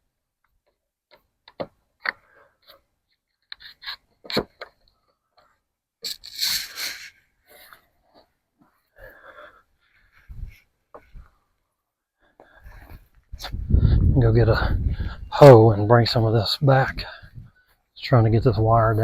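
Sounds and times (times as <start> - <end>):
clicks and light scrapes: 0.4 - 8.9
loud scraping rustle: 6.1 - 7.8.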